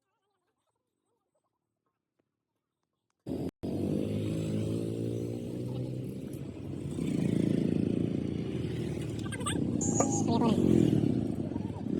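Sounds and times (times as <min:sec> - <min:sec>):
vehicle engine running: 0:05.4 - 0:11.9.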